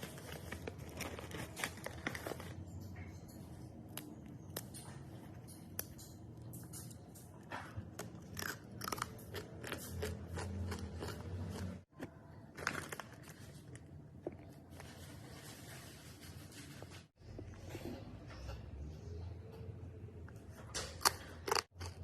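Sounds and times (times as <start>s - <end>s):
crunchy food chewing: 7.9s - 11.9s, 21.0s - 22.0s.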